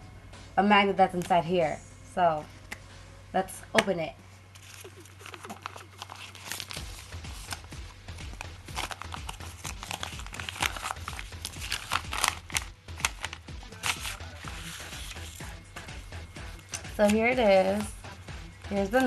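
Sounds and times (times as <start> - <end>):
package wrapping tearing: 4.6 - 15.5.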